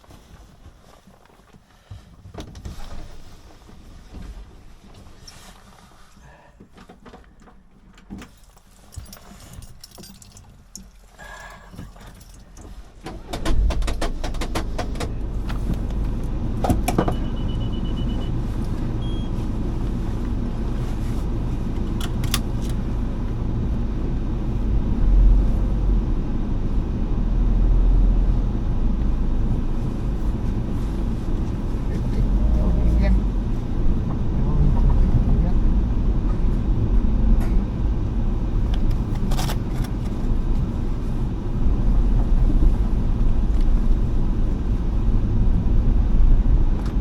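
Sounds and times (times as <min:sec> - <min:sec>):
car engine starting and running: 0:07.0 - 0:47.0
keys jangling: 0:08.4 - 0:10.9.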